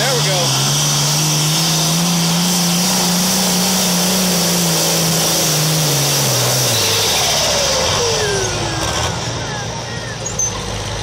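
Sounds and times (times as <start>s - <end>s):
engine running at full throttle: 0.0s - 11.0s.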